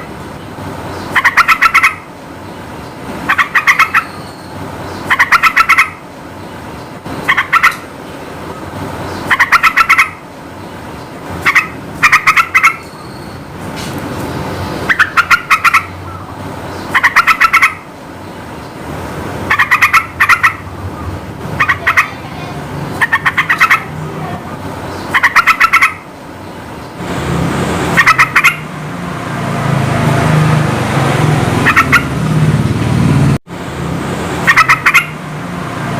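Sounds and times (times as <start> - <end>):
bird singing rapid notes: 0.0 - 18.8, 19.5 - 27.0, 27.9 - 28.7, 31.6 - 32.2, 34.5 - 35.2.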